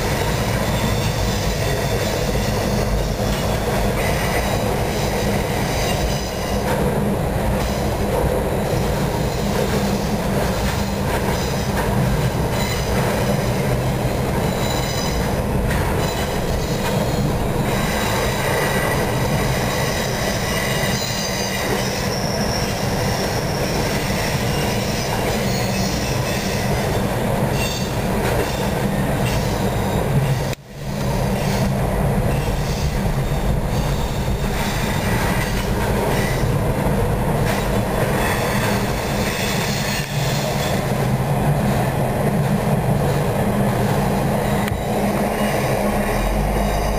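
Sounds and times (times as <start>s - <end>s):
wheels clacking over rail joints: 0.0s - 30.6s
freight train rumbling past: 0.0s - 46.9s
high wheel squeal: 12.4s - 15.4s, 16.0s - 28.0s.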